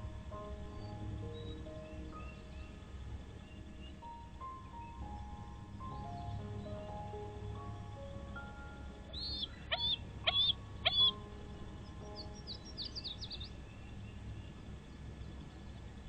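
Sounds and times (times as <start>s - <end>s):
eagle chittering: 9.1s - 11.2s
eagle high thin calls: 9.2s - 11.2s.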